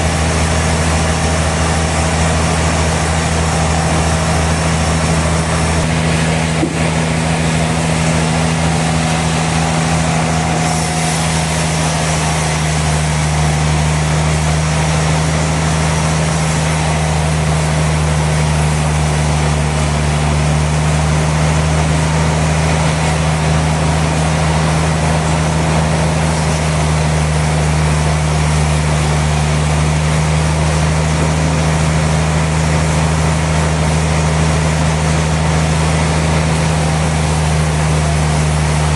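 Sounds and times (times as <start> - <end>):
sawmill machinery running: 0.0 - 38.9
short knock: 6.6 - 7.0.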